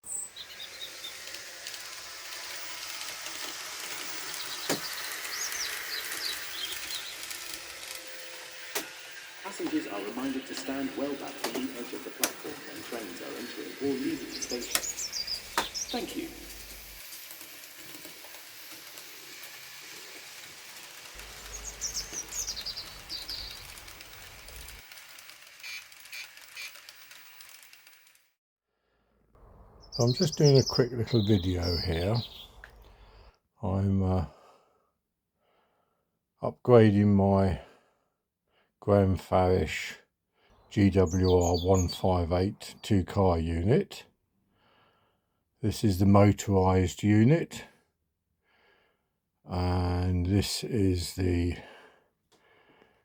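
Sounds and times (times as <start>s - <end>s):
bird chirps: 0.0s - 1.4s, 3.7s - 17.0s, 21.2s - 24.8s, 29.4s - 33.2s, 40.6s - 42.8s
steady hiss: 0.1s - 24.8s.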